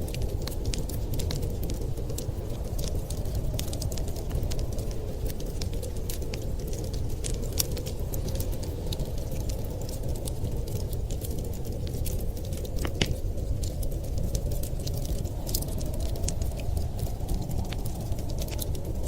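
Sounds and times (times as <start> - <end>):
storm wind rumble: 0.0 - 19.0
wood fire crackling and popping: 0.0 - 19.0.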